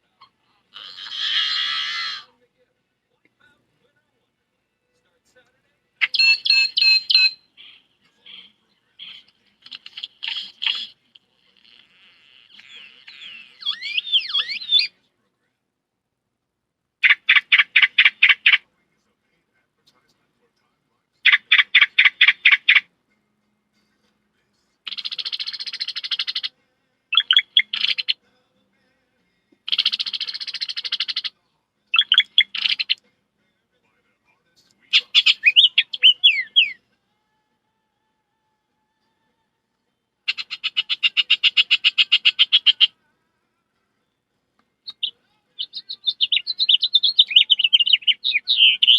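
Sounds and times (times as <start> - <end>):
person imitating bird calls: 0.2 - 2.3, 6.0 - 14.9, 24.9 - 26.5, 27.1 - 28.2, 29.7 - 31.3, 32.0 - 33.0, 34.9 - 36.8, 40.3 - 42.9, 44.9 - 48.9.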